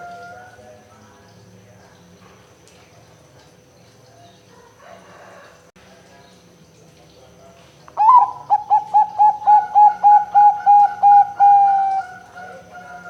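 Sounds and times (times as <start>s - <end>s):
dove cooing: 8.0s - 13.0s.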